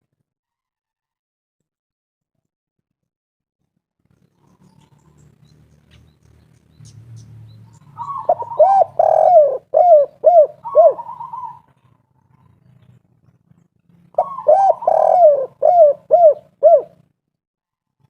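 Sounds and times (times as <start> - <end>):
dove cooing: 7.7 - 12.8, 14.1 - 17.0.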